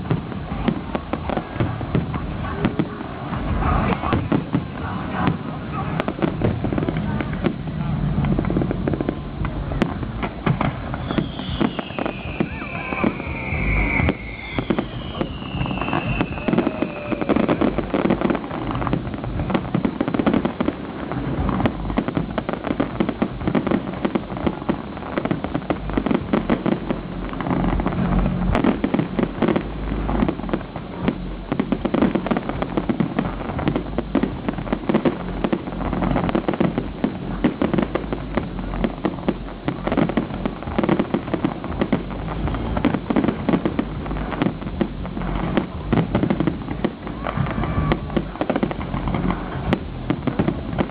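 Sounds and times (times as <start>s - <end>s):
fireworks crackling and banging: 0.0s - 50.9s
falling firework whistle: 10.6s - 18.5s, 45.5s - 50.8s.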